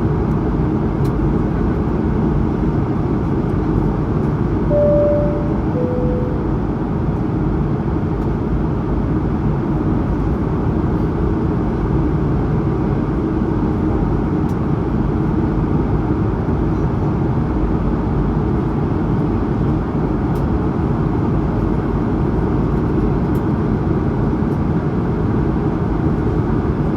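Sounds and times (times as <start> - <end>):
faint steady hum: 4.7 - 6.7.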